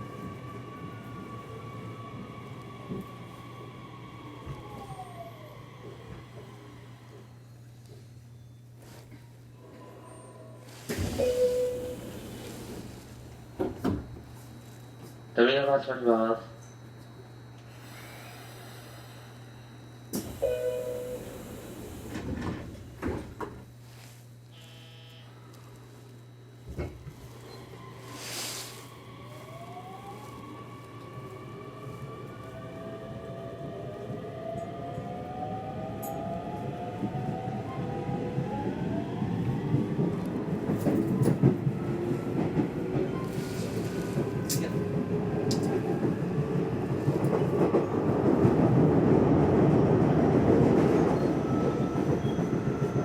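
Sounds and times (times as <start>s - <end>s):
train car low hum: 0.0s - 53.0s
train doors thumping shut: 10.8s - 14.4s, 20.1s - 23.7s, 26.7s - 27.2s
short tone: 20.4s - 21.3s, 24.5s - 25.3s
brief buzz: 24.5s - 25.4s.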